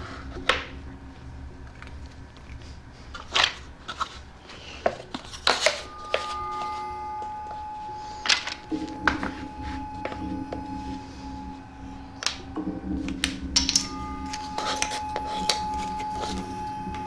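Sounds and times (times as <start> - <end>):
faint steady tone: 5.5 - 17.0.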